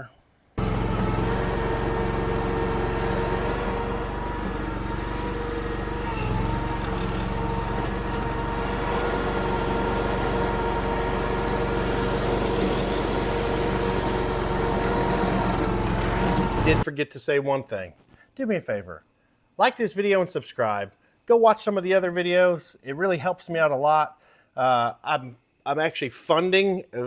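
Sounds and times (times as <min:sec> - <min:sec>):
gas engine running steadily: 0:00.6 - 0:16.8.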